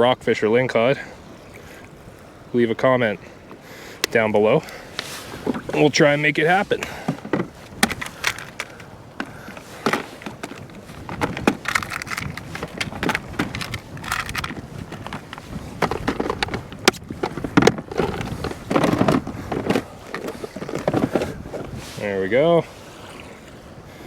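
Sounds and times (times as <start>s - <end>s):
water noise: 0.0s - 24.0s
wind noise: 4.0s - 24.0s
fishing tackle clicking and rattling: 6.9s - 21.3s.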